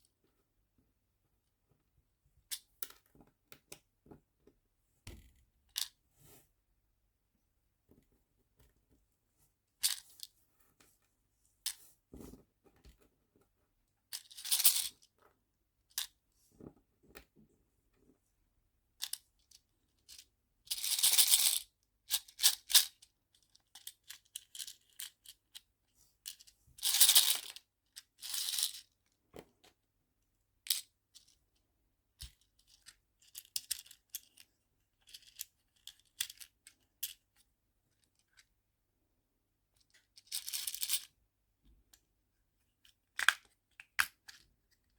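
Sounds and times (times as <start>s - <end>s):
small plastic boxes clicking: 43.2s - 44.4s.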